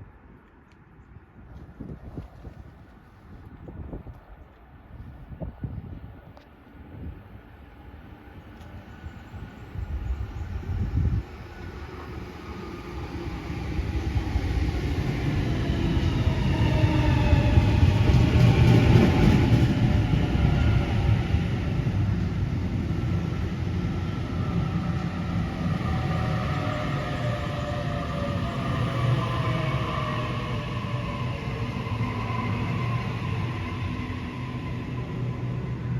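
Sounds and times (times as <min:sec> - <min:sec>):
train passing with low rumble: 0:00.0 - 0:35.9.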